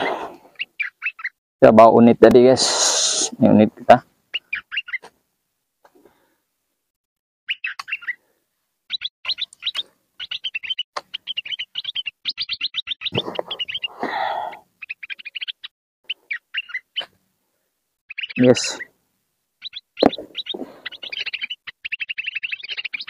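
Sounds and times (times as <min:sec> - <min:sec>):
small bird chirping: 0:00.5 - 0:01.4, 0:04.3 - 0:05.1, 0:07.5 - 0:08.2, 0:08.8 - 0:17.3, 0:18.0 - 0:19.0, 0:19.6 - 0:23.0.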